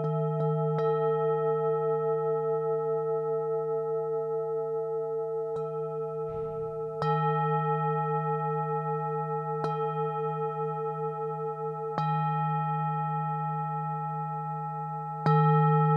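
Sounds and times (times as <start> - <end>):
singing bowls ringing: 0.0 - 15.9
singing bowl strikes: 6.3 - 7.5.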